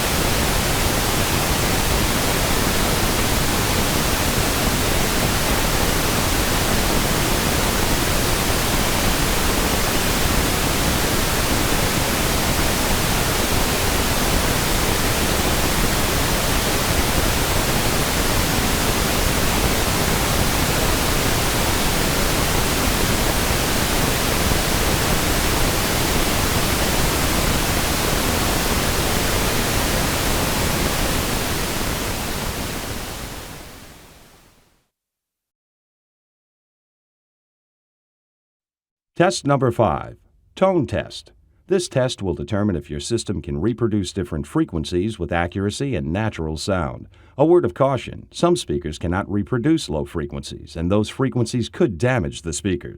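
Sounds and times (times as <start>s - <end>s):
pink noise hiss: 0.0s - 34.7s.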